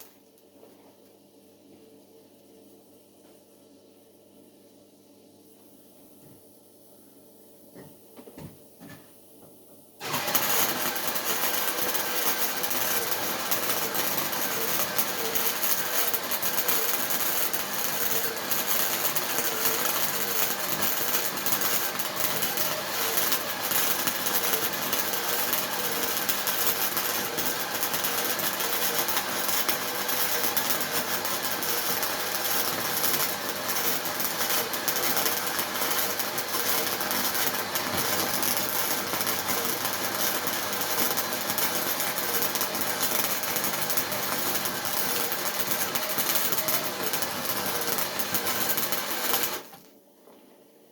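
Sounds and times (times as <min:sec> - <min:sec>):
welding arc crackling: 0:10.0 - 0:49.9.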